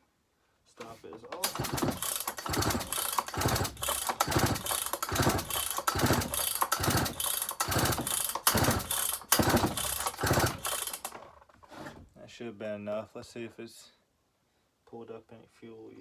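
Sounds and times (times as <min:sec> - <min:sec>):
chainsaw recoil starter pulled: 0:00.8 - 0:12.1
engine cranking without firing: 0:00.8 - 0:12.1.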